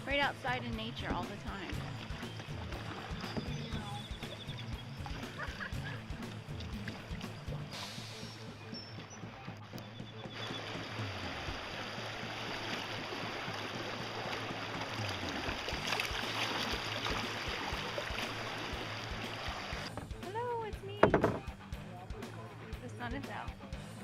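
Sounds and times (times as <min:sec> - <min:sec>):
creek water rushing: 0:00.0 - 0:09.6, 0:10.4 - 0:20.0.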